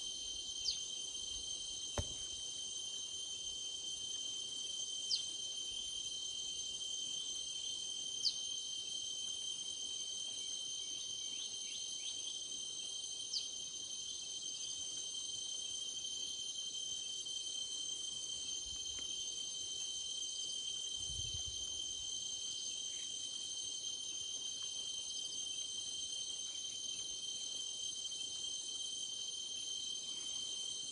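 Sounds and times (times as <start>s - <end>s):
insects chorus: 0.0s - 30.9s.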